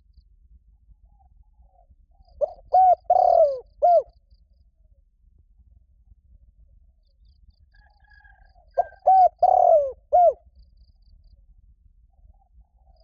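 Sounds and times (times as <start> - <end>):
dove cooing: 2.4 - 4.1, 8.3 - 10.4.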